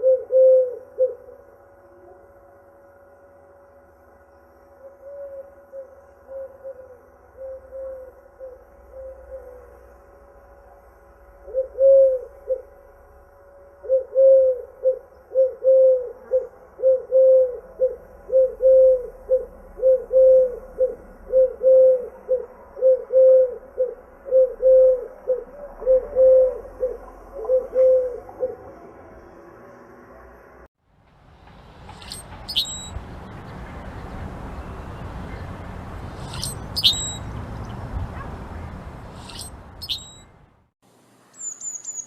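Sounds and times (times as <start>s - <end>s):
dove cooing: 0.0s - 2.2s, 4.9s - 9.9s, 11.4s - 12.8s, 13.8s - 29.0s.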